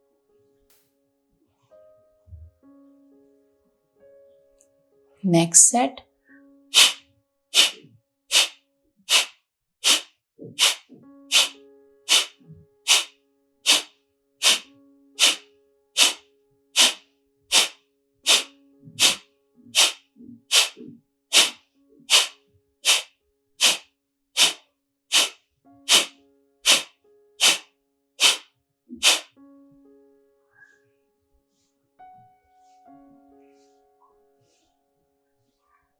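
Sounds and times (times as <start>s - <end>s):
soft sustained background music: 0.0s - 8.8s, 11.0s - 23.5s, 25.8s - 28.7s, 29.3s - 35.9s
forceful nasal exhalations: 6.8s - 7.0s, 7.6s - 13.1s, 13.7s - 15.4s, 16.0s - 16.2s, 16.8s - 19.2s, 19.8s - 23.8s, 24.4s - 27.6s, 28.2s - 28.4s, 29.0s - 29.3s.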